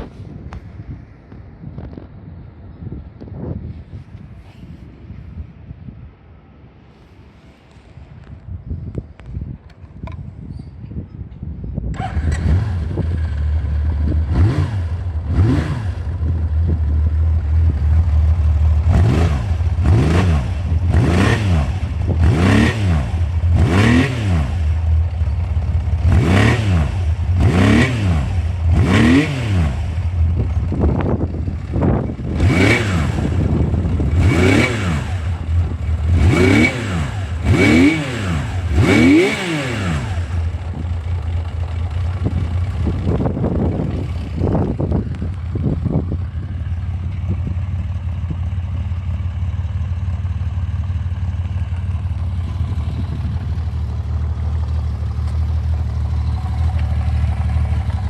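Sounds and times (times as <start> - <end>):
motorcycle engine revving: 11.9 - 58.0.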